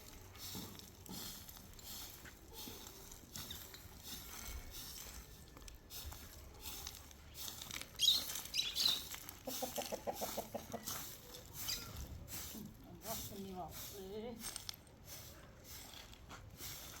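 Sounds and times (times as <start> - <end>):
chickens clucking: 7.8 - 12.3.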